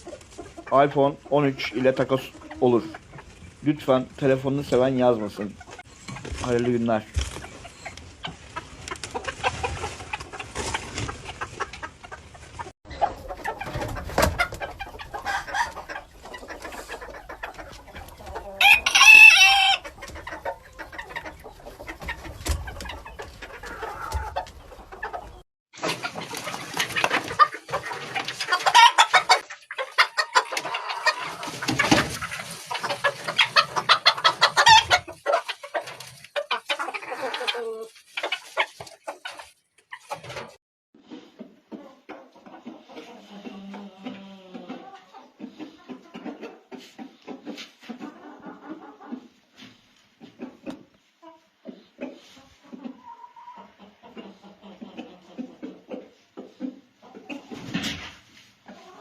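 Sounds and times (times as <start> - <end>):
chickens clucking: 0.0 - 59.0
rooster crowing: 18.6 - 19.8.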